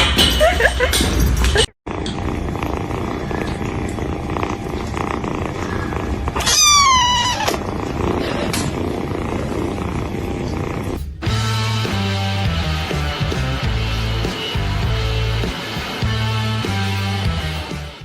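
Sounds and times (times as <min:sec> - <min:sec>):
cat meowing: 0:06.4 - 0:07.6.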